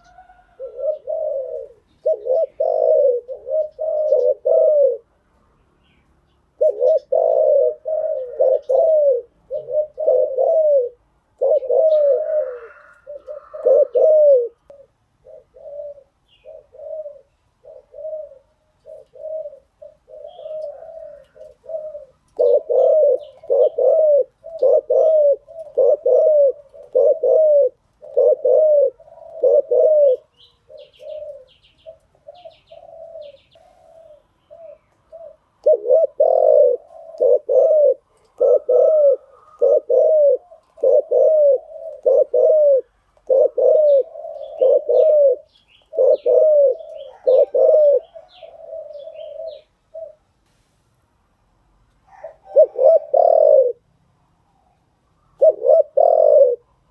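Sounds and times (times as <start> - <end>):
dove cooing: 0.0 - 50.3, 52.0 - 56.9
high chirps of small birds: 5.3 - 10.6, 11.3 - 26.0, 30.1 - 35.4, 43.0 - 50.2.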